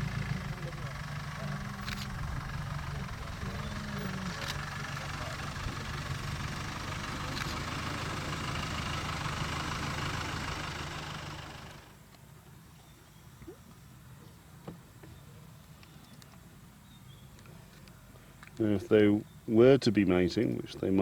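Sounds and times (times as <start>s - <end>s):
vehicle engine idling: 0.0s - 12.1s.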